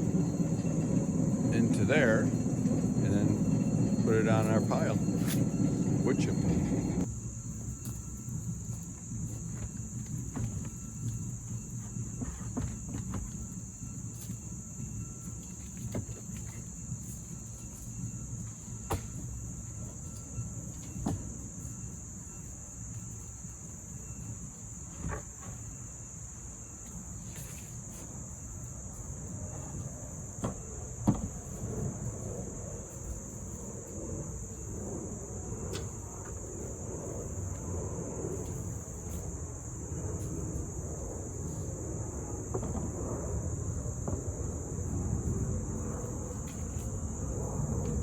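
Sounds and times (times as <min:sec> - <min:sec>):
low background rumble: 0:00.0 - 0:11.8
high-pitched insect chorus: 0:00.0 - 0:48.0.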